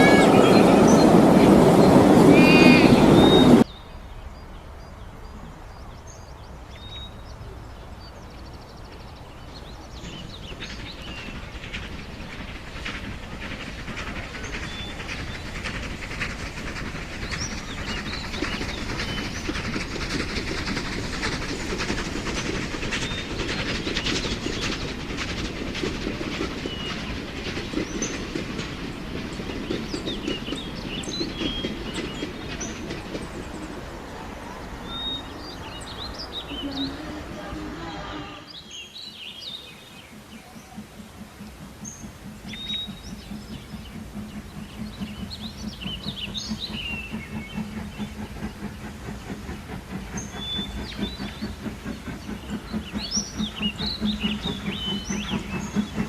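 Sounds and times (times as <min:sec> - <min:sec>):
train wheels clicking on rail joints: 0:06.4 - 0:56.0.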